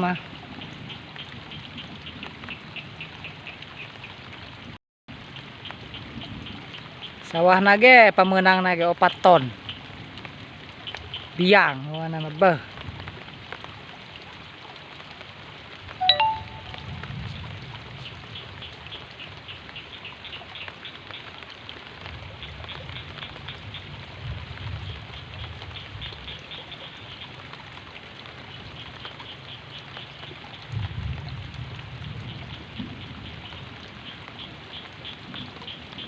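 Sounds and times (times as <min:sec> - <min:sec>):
steady rain falling: 0:00.0 - 0:36.0
short sharp high-pitched call: 0:16.0 - 0:16.9.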